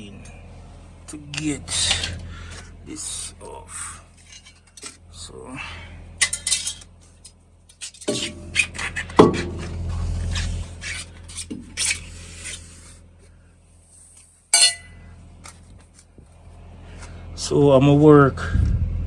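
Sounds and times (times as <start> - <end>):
metal tools clinking: 1.4 - 2.7, 4.1 - 5.0, 6.2 - 8.3, 14.5 - 16.0
sharp metal clank: 14.5 - 15.1.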